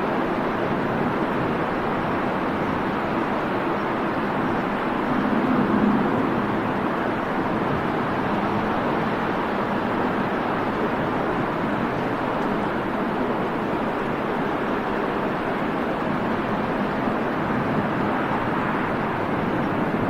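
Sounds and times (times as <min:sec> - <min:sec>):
wind: 0:00.0 - 0:20.0
jet airliner rushing noise: 0:03.3 - 0:09.9.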